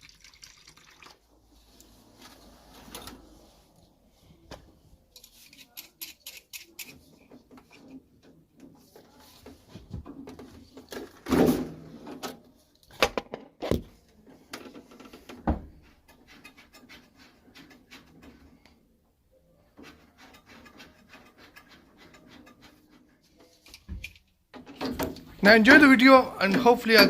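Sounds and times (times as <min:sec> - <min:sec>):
tools clicking and tapping: 0:05.1 - 0:08.8.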